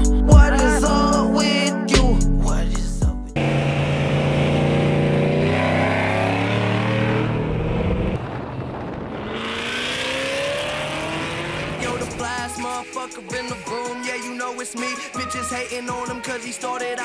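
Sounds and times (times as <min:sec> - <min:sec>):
car engine accelerating hard: 0:03.4 - 0:12.4.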